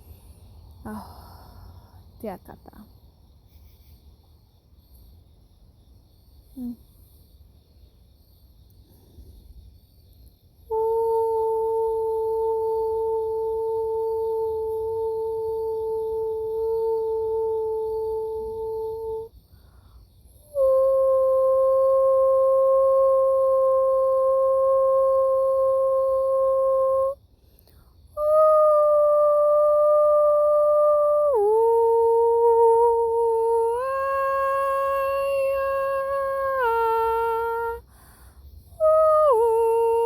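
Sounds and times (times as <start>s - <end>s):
woman humming long notes: 0.8s - 1.4s, 6.6s - 6.8s, 10.7s - 19.3s, 20.5s - 27.2s, 28.2s - 37.8s, 38.8s - 40.0s.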